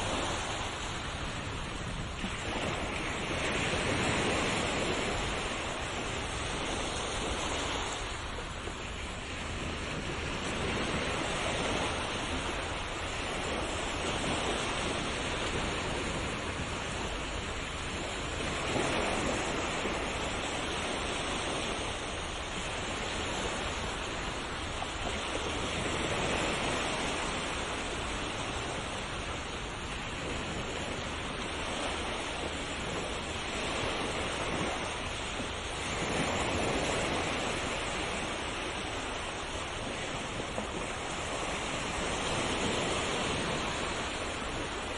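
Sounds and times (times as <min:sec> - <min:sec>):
waves washing onto shore: 0:00.0 - 0:44.9.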